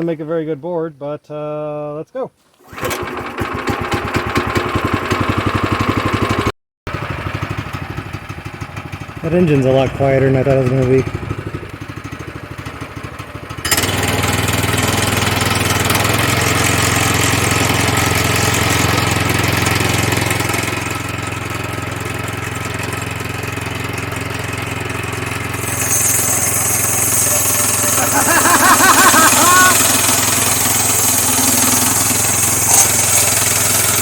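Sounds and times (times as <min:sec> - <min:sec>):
small gasoline engine running: 0:02.6 - 0:34.0
band saw blade cutting: 0:13.6 - 0:19.2, 0:25.4 - 0:34.0.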